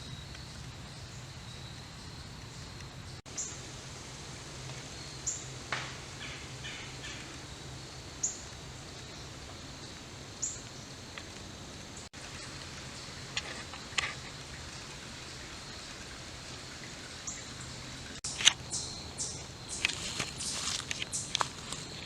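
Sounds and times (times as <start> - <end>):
crunching footsteps on trail: 18.2 - 22.0.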